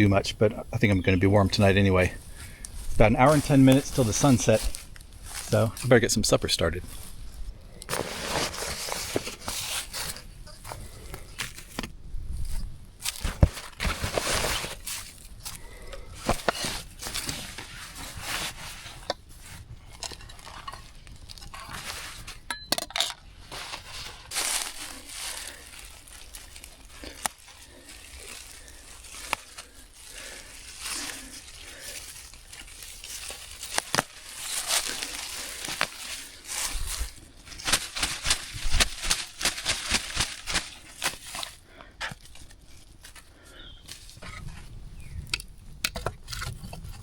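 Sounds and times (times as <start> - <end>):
gear rustling and crinkling: 1.1 - 45.1.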